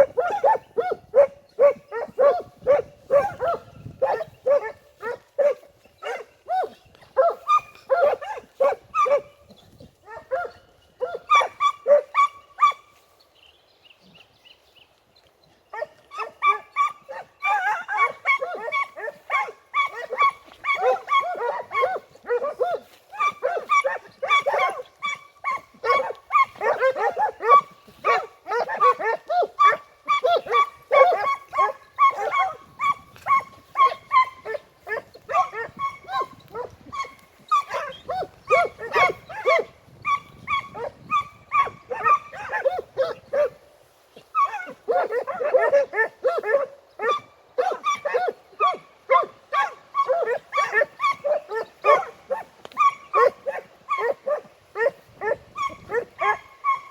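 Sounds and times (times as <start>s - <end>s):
hounds baying: 0.0s - 13.0s, 15.7s - 56.9s.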